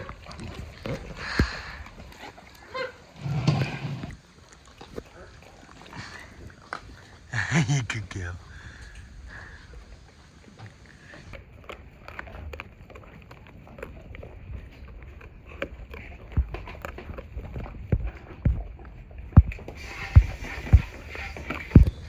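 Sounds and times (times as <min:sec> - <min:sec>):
dogs crunching bones: 0:11.4 - 0:19.8.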